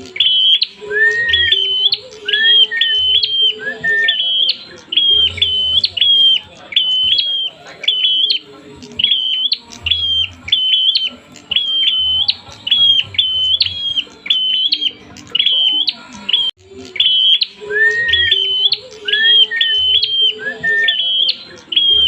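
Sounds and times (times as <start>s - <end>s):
bird chirping rapidly: 0.0s - 22.0s
upslurred whistled bird note: 0.0s - 22.0s.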